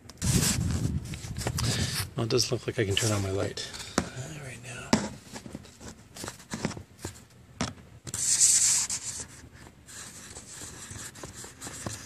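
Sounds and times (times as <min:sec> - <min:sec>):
brushing rub across microphone: 0:00.2 - 0:02.1, 0:02.8 - 0:03.6, 0:08.1 - 0:12.0.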